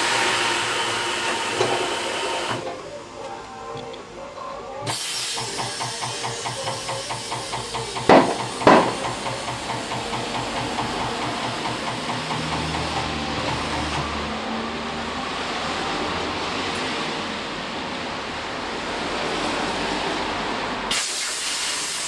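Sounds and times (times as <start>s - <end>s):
air hissing: 4.9s - 12.6s, 20.9s - 22.0s.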